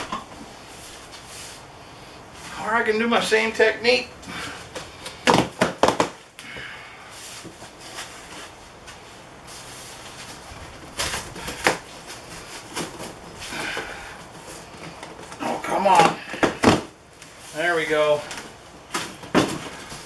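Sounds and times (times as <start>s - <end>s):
packaging rustling and scraping: 7.2s - 20.0s.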